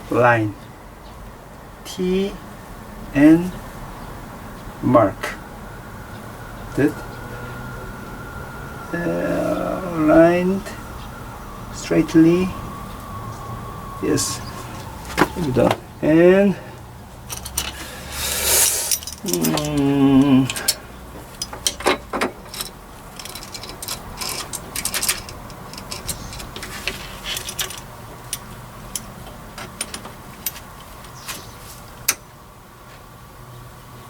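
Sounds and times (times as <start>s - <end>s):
short drawn-out vocal sound: 18.0s - 20.7s.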